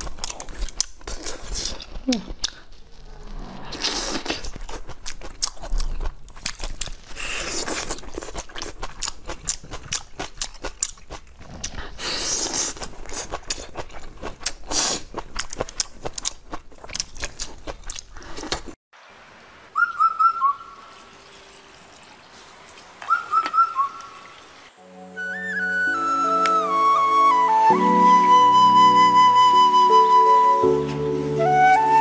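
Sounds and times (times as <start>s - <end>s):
person biting and chewing food: 0.0s - 18.8s.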